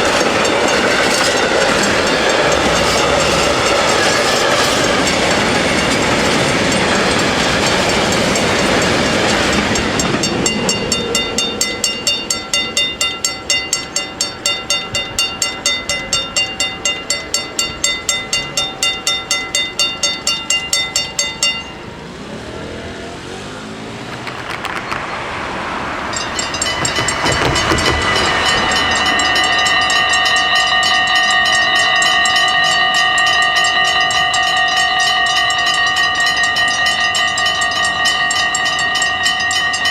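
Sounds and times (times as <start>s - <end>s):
level crossing warning bells: 0.0s - 24.6s, 25.8s - 39.9s
train passing: 0.0s - 39.9s.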